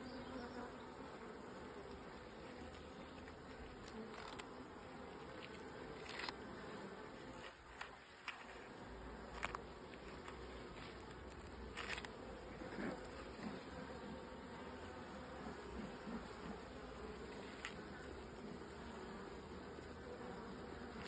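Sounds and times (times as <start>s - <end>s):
honeybees humming: 0.0s - 21.0s.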